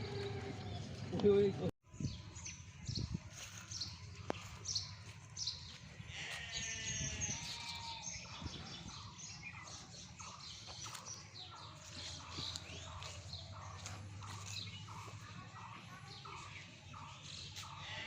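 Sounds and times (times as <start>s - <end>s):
sheep bleating: 0.0s - 0.8s, 6.0s - 8.2s, 17.7s - 18.0s
small birds chirping: 0.0s - 18.0s.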